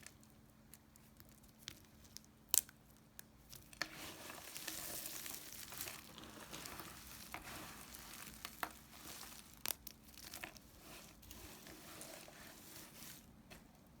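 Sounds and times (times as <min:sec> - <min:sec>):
knife cutting dry soap: 0:03.7 - 0:13.8.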